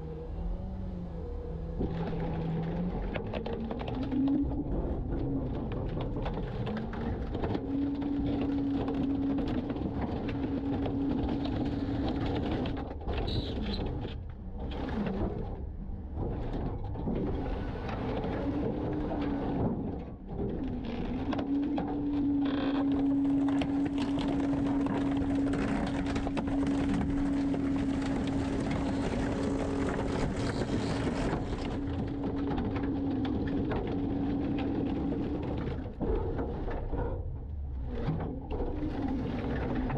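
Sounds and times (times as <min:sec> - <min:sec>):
hydraulic packer whine: 0:22.0 - 0:34.9.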